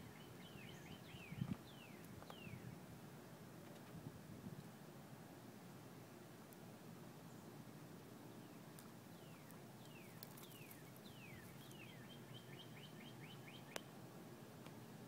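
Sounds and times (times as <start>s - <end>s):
bird singing: 0.0s - 2.8s, 8.2s - 13.9s.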